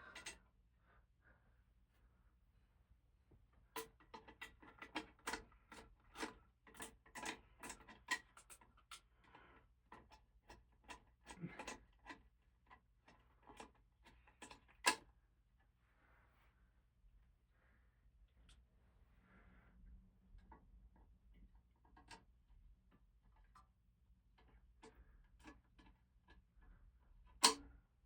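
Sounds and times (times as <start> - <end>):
light clicks and taps of screws: 24.4 - 26.5.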